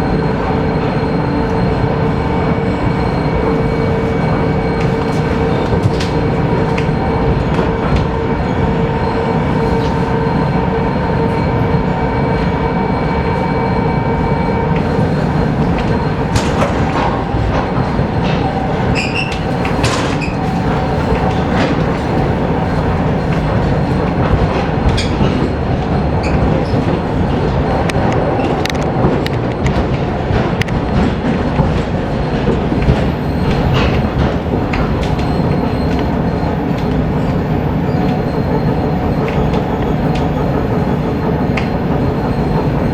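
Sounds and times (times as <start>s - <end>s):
high squeals: 0.0s - 24.1s
humming tone: 0.0s - 29.9s
train running gear rumble: 0.0s - 42.9s.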